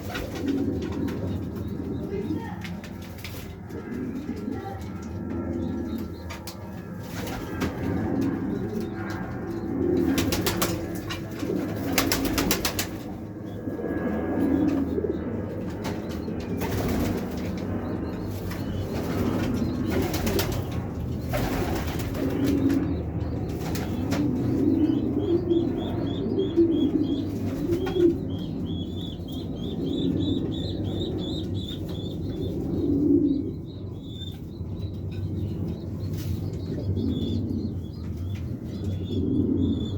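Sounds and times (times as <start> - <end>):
wing flapping: 0.0 - 4.7, 6.3 - 9.2, 9.9 - 13.2, 15.7 - 24.6
pigeons cooing: 0.0 - 39.9.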